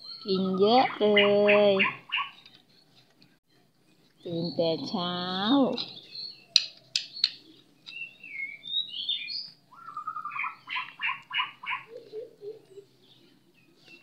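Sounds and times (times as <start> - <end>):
bird whistling and chirping: 0.0 - 2.4, 5.8 - 14.0.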